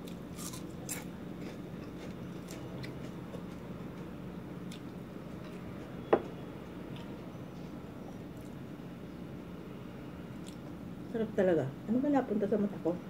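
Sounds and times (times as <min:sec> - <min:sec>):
crunchy chewing: 0:00.0 - 0:05.9
low room hum: 0:00.0 - 0:13.0.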